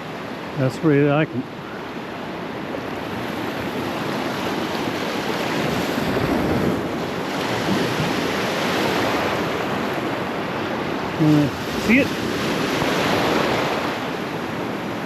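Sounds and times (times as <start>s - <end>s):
wind buffeting microphone: 2.2s - 15.0s
surf breaking on beach: 3.0s - 15.0s.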